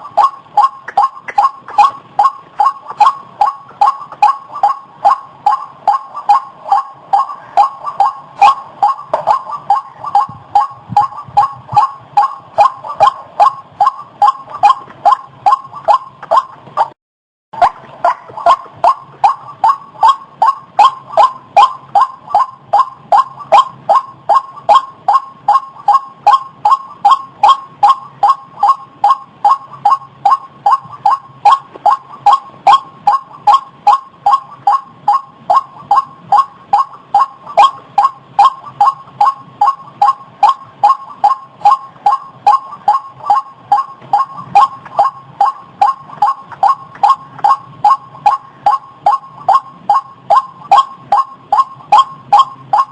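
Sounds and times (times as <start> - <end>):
waterhen calling: 17.6 - 52.9.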